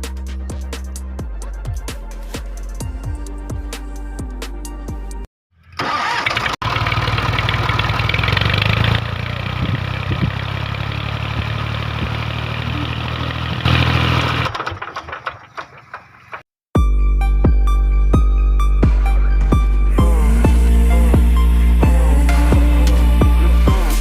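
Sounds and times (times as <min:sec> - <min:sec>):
engine running: 0:05.6 - 0:16.4.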